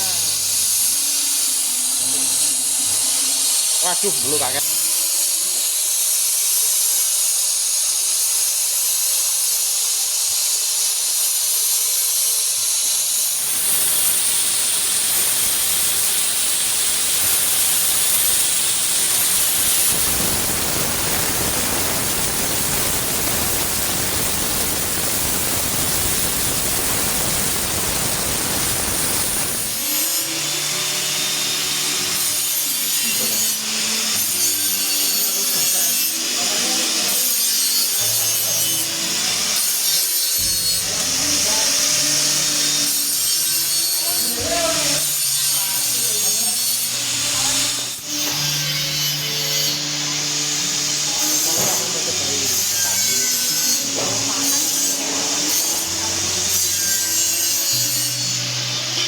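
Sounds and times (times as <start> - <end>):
steam hissing: 13.3 - 33.6, 37.1 - 59.0.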